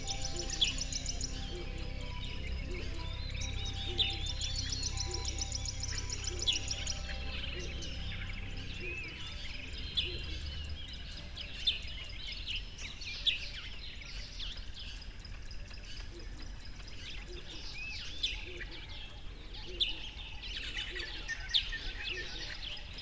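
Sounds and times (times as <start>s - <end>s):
faint low rumble: 0.0s - 12.6s
songbirds chirping and singing: 0.0s - 23.0s.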